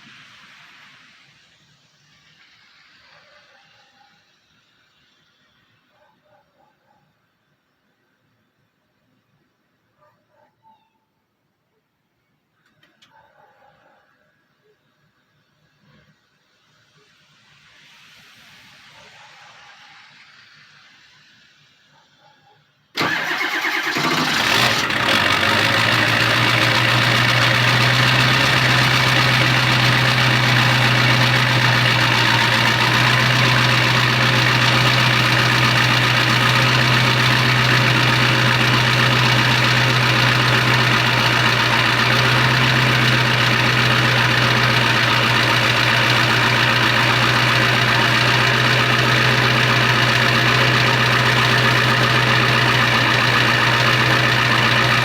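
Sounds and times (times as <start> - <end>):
diesel engine idling: 23.0 - 55.0.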